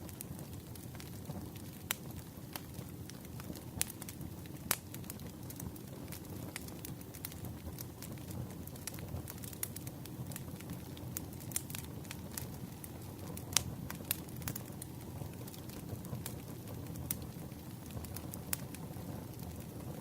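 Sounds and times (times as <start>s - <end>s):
campfire crackling and popping: 0.0s - 20.0s
low rumble of flames: 0.0s - 20.0s.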